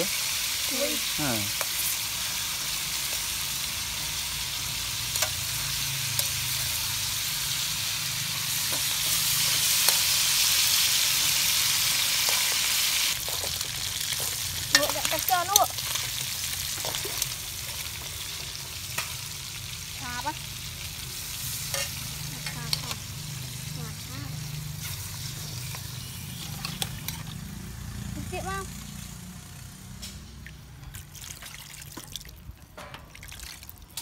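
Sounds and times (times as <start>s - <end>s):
food sizzling in oil: 0.0s - 31.2s
metal spoon scraping wok: 3.1s - 19.4s, 21.1s - 27.9s.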